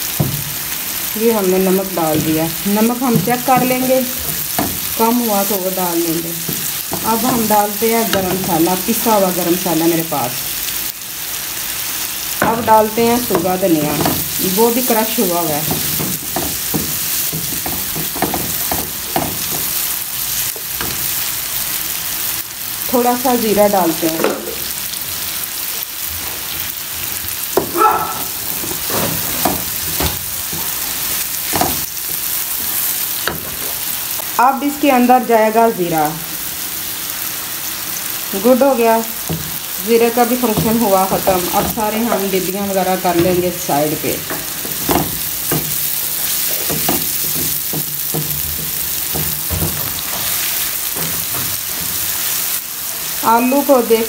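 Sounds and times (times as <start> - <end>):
vegetables sizzling in oil: 0.0 - 54.0
spatula scraping and knocking pan: 12.4 - 19.9, 28.5 - 33.8, 39.2 - 52.5.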